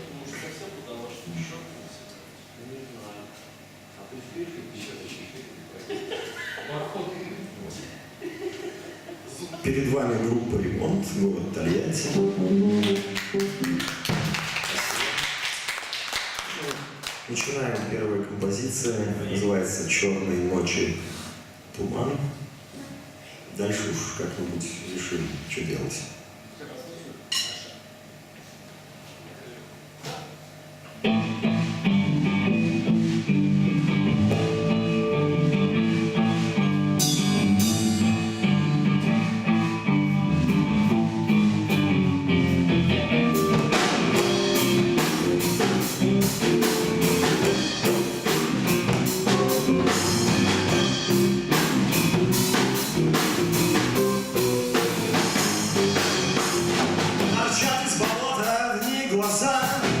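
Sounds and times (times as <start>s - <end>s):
electric guitar and bass: 10.5s - 14.4s, 30.9s - 58.2s, 59.6s - 60.0s
drum kit playing: 10.6s - 16.0s, 31.0s - 60.0s.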